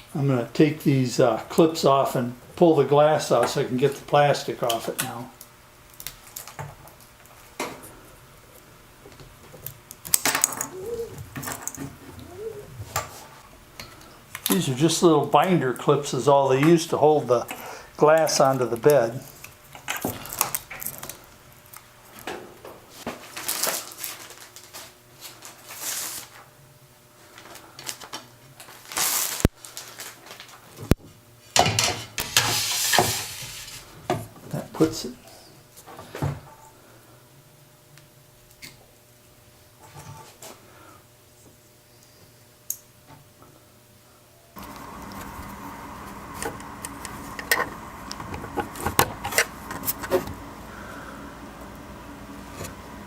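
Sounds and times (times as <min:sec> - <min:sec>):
steady hum: 0:30.9 - 0:53.0.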